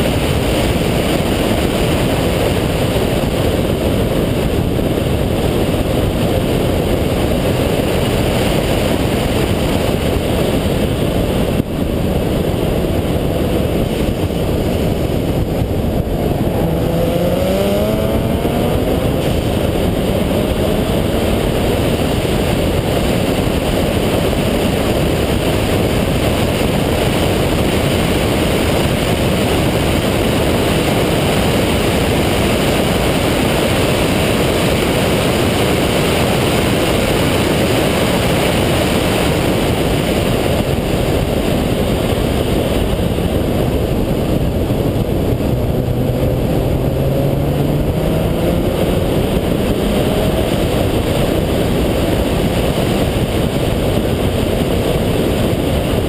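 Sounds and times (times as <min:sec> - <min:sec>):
wind and road noise: 0:00.0 - 0:56.0
rotary engine revving: 0:12.7 - 0:22.8, 0:43.7 - 0:53.8.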